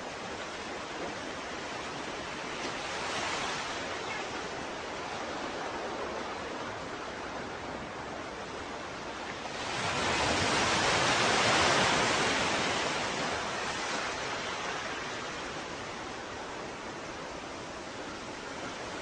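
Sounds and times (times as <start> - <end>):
ocean waves: 0.0 - 19.0.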